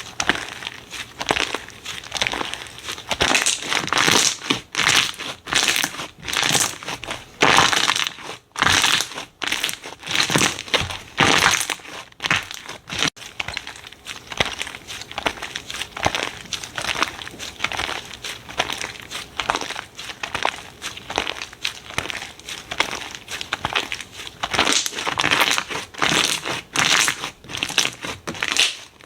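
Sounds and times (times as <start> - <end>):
slime squeezed by hand: 0.0 - 29.0.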